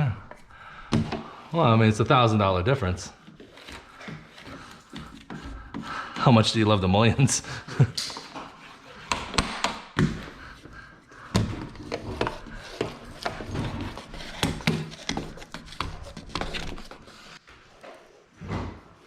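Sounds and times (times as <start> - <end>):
hard objects knocking and tapping: 0.3 - 1.3, 7.9 - 17.0
objects rubbing: 0.3 - 6.8, 10.2 - 17.4.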